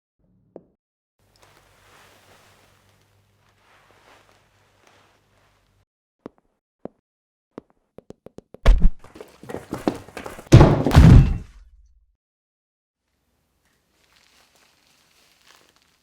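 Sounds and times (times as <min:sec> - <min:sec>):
heavy thuds: 0:08.7 - 0:11.7
loud thud: 0:10.4 - 0:11.7.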